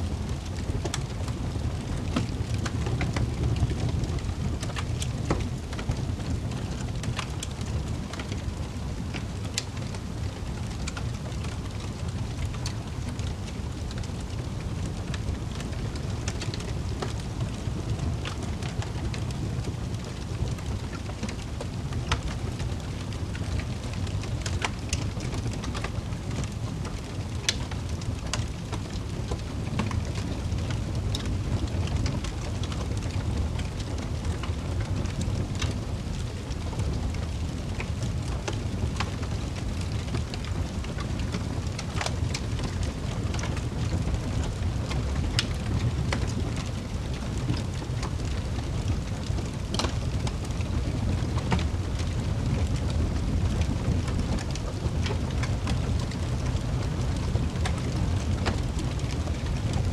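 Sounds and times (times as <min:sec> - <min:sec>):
fire crackling and popping: 0:00.0 - 0:59.9
low rumble of flames: 0:00.0 - 0:59.9.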